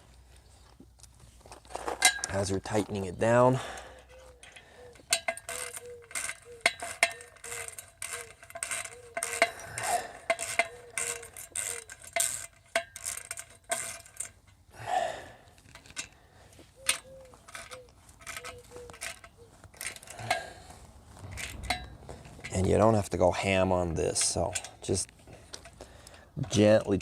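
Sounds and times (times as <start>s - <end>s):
socket wrench clicking and clinking: 4.0s - 14.6s, 16.8s - 20.5s, 21.2s - 22.6s.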